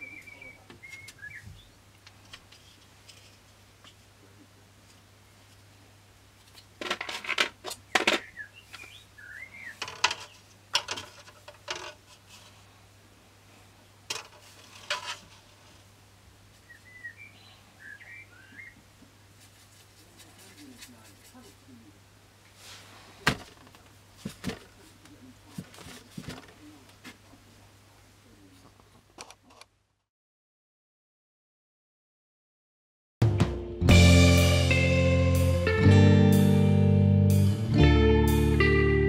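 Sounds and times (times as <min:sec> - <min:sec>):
small bird chirping: 0:00.0 - 0:01.8, 0:07.8 - 0:10.5, 0:16.6 - 0:18.8
clicks and rattling handling noises: 0:06.4 - 0:08.3, 0:09.8 - 0:12.2, 0:14.1 - 0:15.5.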